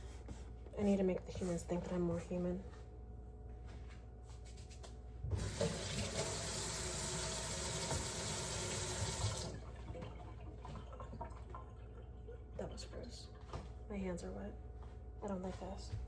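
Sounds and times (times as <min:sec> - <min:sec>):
tap running into sink: 0:05.3 - 0:09.6.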